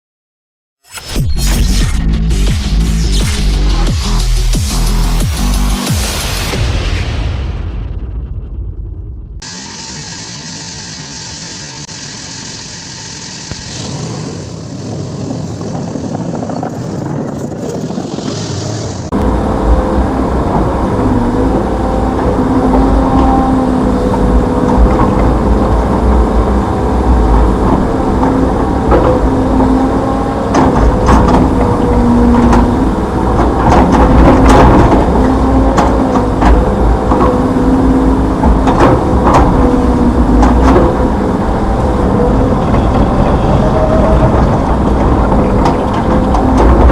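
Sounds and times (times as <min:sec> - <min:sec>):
excavator diesel engine whining: 0:18.8 - 0:46.9.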